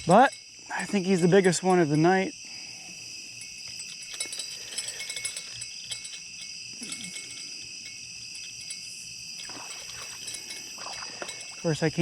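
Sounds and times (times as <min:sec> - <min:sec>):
night insects trilling: 0:00.0 - 0:12.0
faint clicks and rustles: 0:03.3 - 0:12.0.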